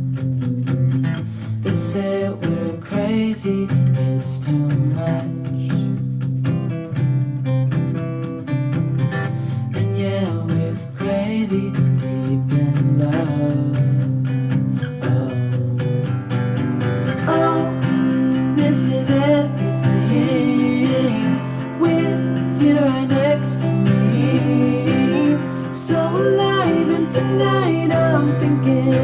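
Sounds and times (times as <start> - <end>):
strummed acoustic guitar: 0.0 - 29.0
person singing: 1.6 - 5.7, 9.7 - 14.0, 15.0 - 15.7, 17.2 - 29.0.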